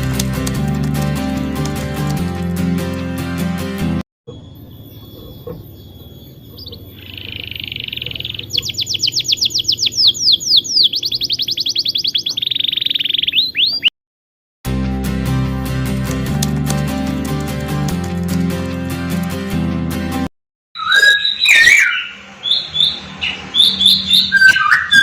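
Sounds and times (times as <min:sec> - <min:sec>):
songbird singing trills and whistles: 0:04.3 - 0:13.9, 0:20.8 - 0:25.0.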